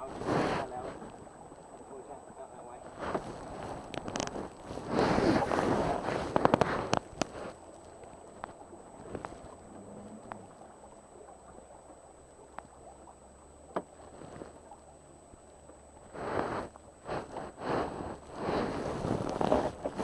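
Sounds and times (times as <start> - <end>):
faint low hum: 0.0 - 20.0
faint water sounds: 0.0 - 20.0
sharp knocks on a boat: 13.7 - 13.9.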